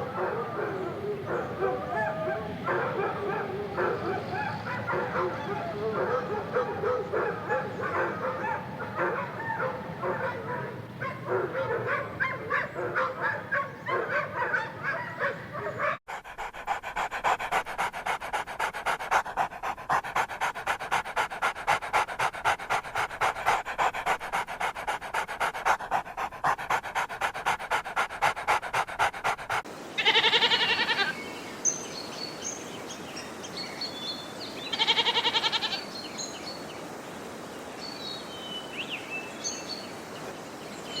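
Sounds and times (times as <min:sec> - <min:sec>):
dogs yipping and whimpering: 0:00.0 - 0:31.1
dog panting fast: 0:15.9 - 0:29.7
goat bleats: 0:30.0 - 0:31.1, 0:34.7 - 0:35.8.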